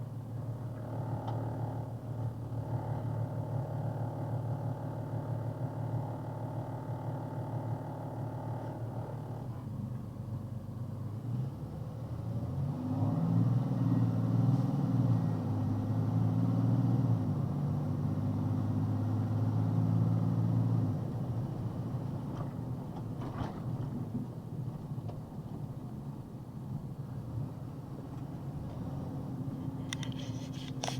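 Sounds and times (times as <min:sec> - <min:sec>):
truck engine under throttle: 0:27.8 - 0:30.9.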